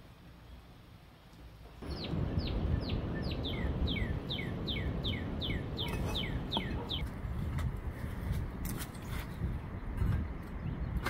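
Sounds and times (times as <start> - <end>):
songbird falling chirp: 1.8 - 7.1
steady low rumble: 1.8 - 8.7.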